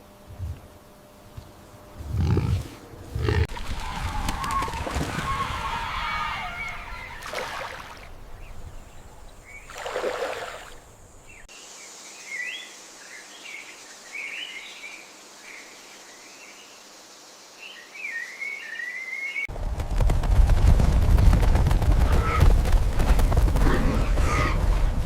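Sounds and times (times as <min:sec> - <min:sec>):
birds chirping: 0:01.4 - 0:11.5.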